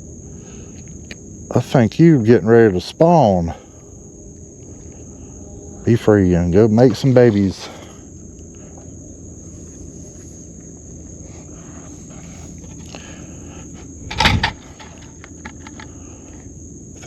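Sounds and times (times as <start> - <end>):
crickets chirping: 0.0 - 17.0
loud bump: 14.1 - 14.8.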